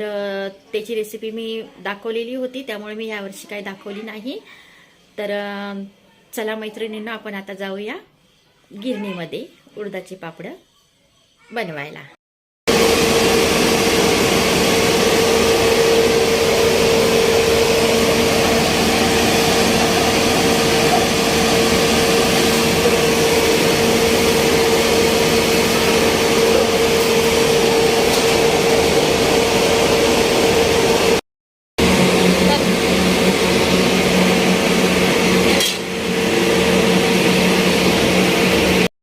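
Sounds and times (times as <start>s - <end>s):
mill machinery running: 12.7s - 31.2s, 31.8s - 38.9s
motor hum: 12.7s - 31.2s.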